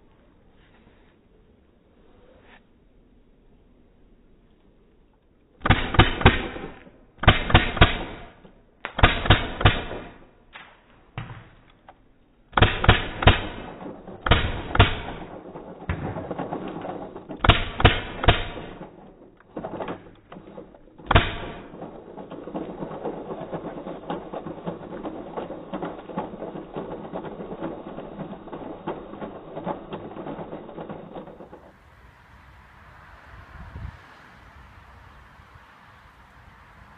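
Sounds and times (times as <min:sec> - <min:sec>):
paintball marker firing bursts: 0:05.6 - 0:10.3, 0:12.6 - 0:31.7
steady rushing noise: 0:12.6 - 0:36.9.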